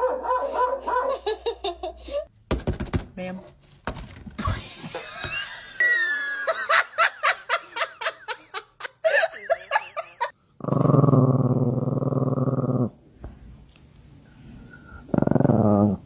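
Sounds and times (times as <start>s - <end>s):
dog growling: 10.6s - 13.0s, 14.9s - 16.0s.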